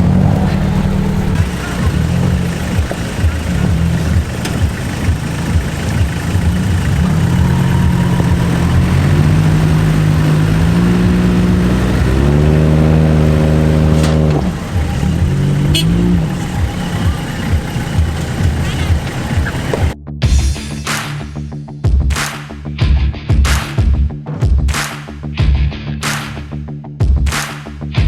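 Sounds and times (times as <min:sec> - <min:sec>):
vehicle engine revving: 0:00.0 - 0:20.0.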